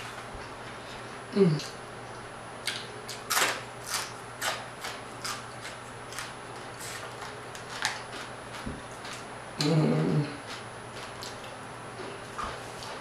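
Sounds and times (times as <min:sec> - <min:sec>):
faint steady hum: 0:00.0 - 0:13.0
crunchy chewing: 0:02.6 - 0:13.0.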